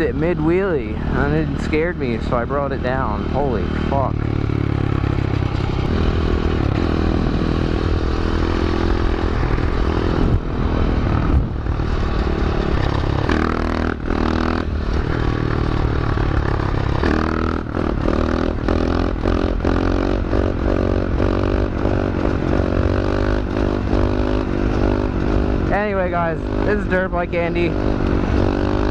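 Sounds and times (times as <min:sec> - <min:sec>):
pit bike engine revving: 0:00.0 - 0:28.9.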